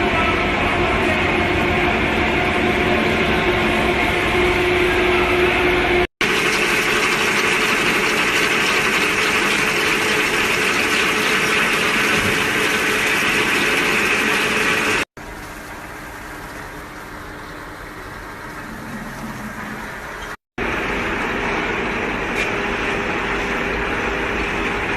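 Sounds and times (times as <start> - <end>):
drilling machine motor hum: 6.2 - 15.1.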